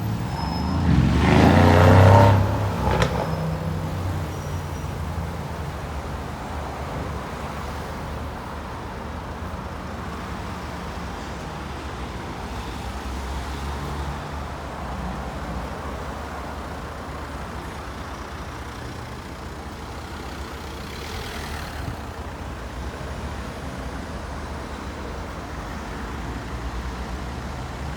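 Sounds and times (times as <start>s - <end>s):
vehicles passing: 0.0s - 27.9s
diesel engine rumble: 14.0s - 27.9s.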